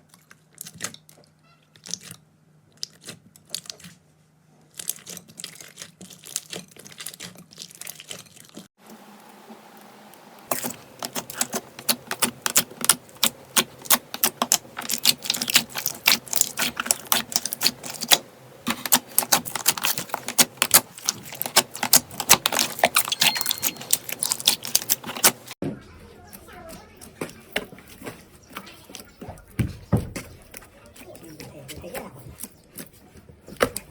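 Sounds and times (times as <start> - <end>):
slime clicking and popping: 10.5 - 25.5.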